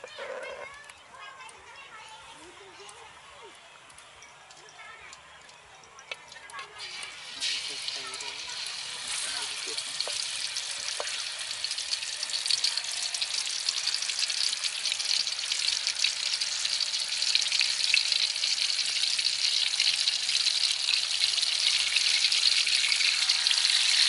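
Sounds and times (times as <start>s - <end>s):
meat sizzling in hot oil: 6.8s - 24.0s.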